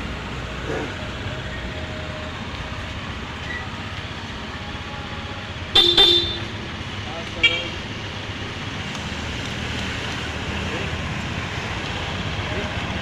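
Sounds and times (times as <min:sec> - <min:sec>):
traffic noise: 0:00.0 - 0:13.0
vehicle horn beeps: 0:05.8 - 0:06.6.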